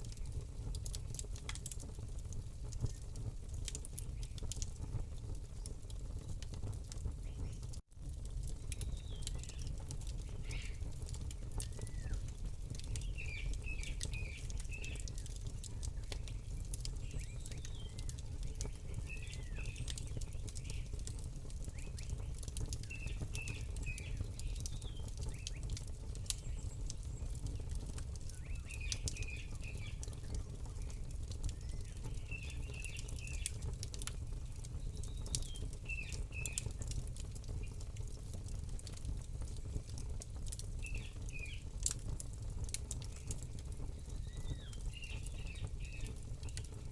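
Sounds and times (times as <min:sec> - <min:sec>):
campfire crackling and popping: 0:00.0 - 0:46.9
birds chirping: 0:08.7 - 0:10.9, 0:11.6 - 0:21.0, 0:26.4 - 0:33.4, 0:43.0 - 0:46.7.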